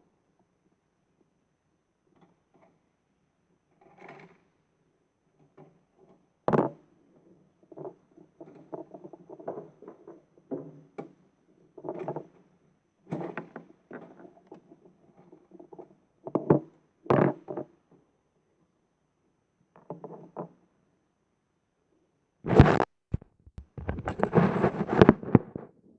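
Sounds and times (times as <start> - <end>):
plastic toy knocks and clatter: 6.5 - 6.8, 15.7 - 17.8, 23.2 - 25.7.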